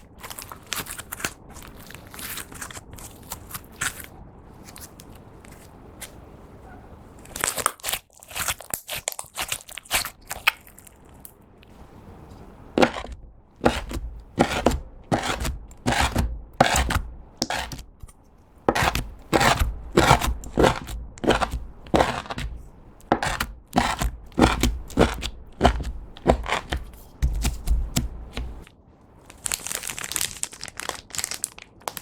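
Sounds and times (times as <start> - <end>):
slime squishing by hand: 7.2 - 28.7
dull thump: 18.7 - 28.6.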